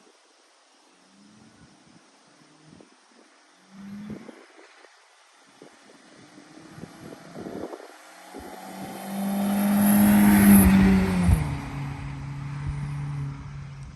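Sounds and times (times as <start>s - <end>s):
car driving past: 5.7s - 13.9s.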